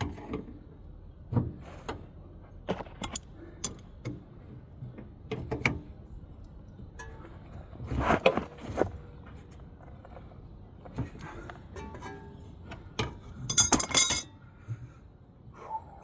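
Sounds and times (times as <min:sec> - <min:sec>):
hand tools clanking on metal: 0:03.0 - 0:03.8, 0:13.5 - 0:14.3.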